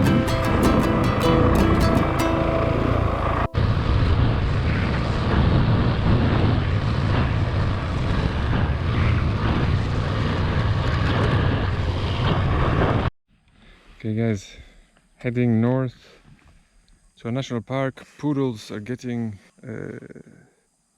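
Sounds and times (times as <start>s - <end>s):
background music: 0.0s - 3.8s
wind noise on microphone: 3.6s - 13.1s.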